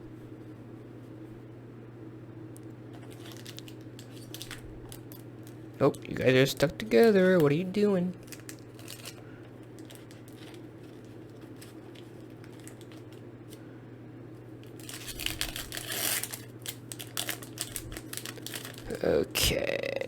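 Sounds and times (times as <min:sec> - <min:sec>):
steady low hum: 0:00.0 - 0:20.0
foil wrappers crinkling: 0:02.9 - 0:13.6, 0:14.6 - 0:19.1.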